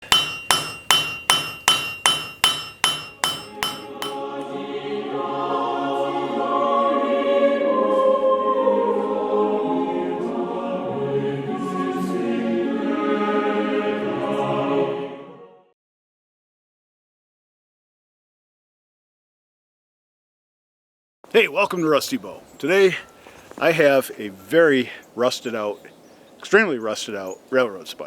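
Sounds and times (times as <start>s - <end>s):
hammer ringing on anvil: 0.0s - 4.3s
choir singing: 3.5s - 15.7s.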